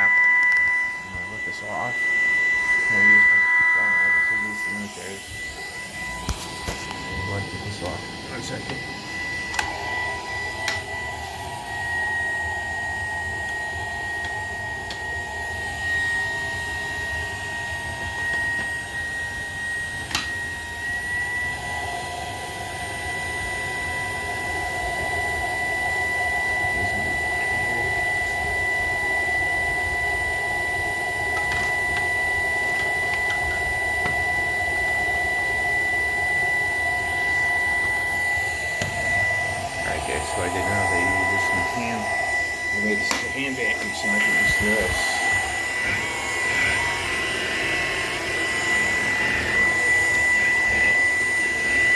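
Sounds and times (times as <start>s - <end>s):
vacuum motor whine: 0.0s - 51.9s
vacuum switch click: 8.6s - 9.8s, 10.6s - 10.9s, 20.0s - 20.4s, 31.3s - 34.3s, 38.8s - 39.3s, 43.0s - 45.0s.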